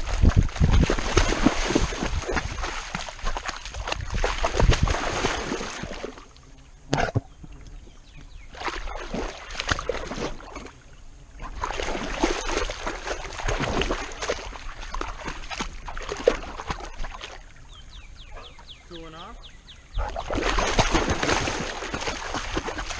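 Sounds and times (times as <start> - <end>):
sharp splash: 0.0 - 6.3, 8.5 - 10.7, 11.4 - 17.5, 20.1 - 22.9
water splashing and sloshing: 0.0 - 7.2, 7.8 - 17.8, 20.0 - 22.9.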